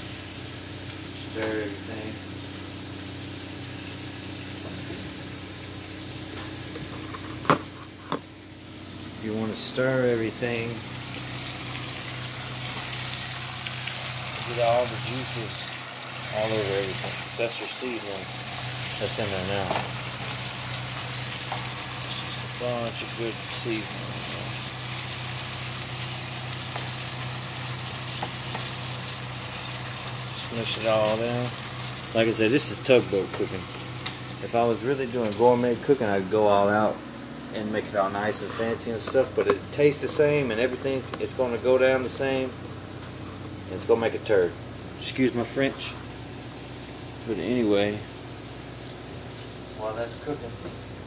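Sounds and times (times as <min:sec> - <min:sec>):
meat and vegetables sizzling in skillet: 0:00.0 - 0:36.3, 0:45.9 - 0:49.9.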